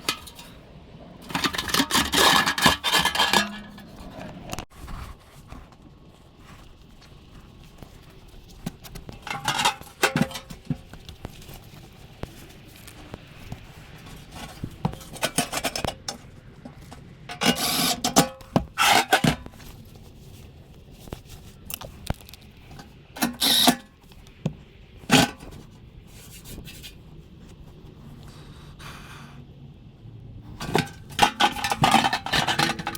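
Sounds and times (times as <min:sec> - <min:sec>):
scraping and rubbing strokes: 0:01.2 - 0:24.3, 0:25.0 - 0:28.3.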